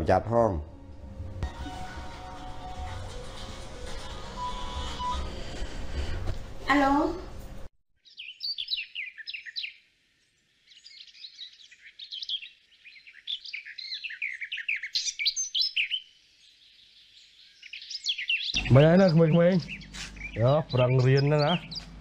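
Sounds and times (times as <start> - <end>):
songbirds chirping and twittering: 8.0 - 22.0.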